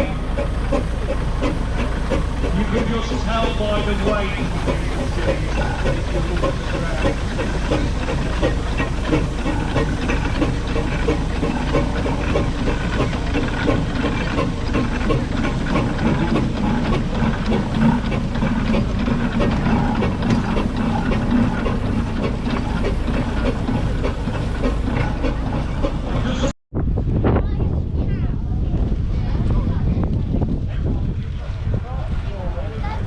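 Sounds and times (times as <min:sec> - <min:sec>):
steady hiss of steam: 0:00.0 - 0:18.6
steam traction engine running: 0:00.0 - 0:26.5.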